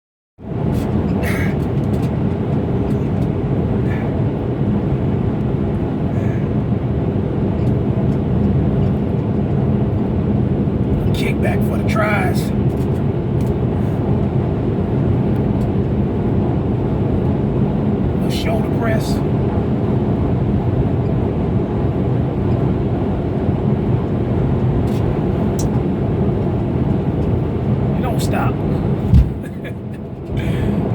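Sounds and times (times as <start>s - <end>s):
truck engine and road noise: 0.4s - 30.9s.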